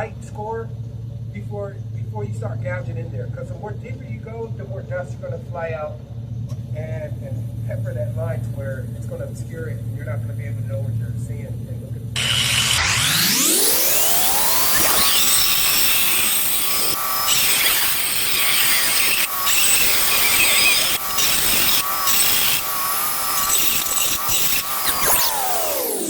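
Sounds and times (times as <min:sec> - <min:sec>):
diamond blade cutting stone tile: 0:12.2 - 0:26.0.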